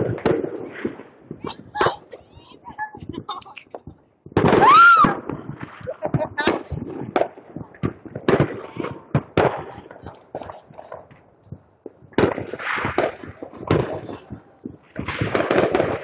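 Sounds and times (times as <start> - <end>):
fireworks bangs and pops: 0.0 - 16.0.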